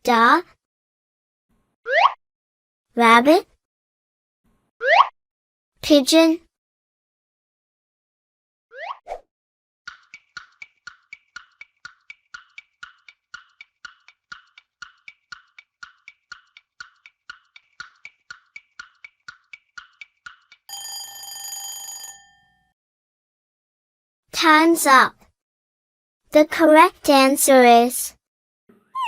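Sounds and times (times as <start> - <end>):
clock ticking: 9.9 - 21.0
alarm ringing: 20.7 - 22.7.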